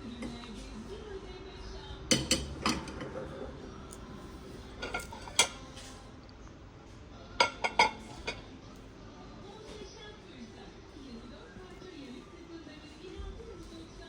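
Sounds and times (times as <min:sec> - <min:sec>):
dishes and cutlery clinking: 0:02.1 - 0:03.5, 0:04.7 - 0:05.9, 0:07.4 - 0:08.6.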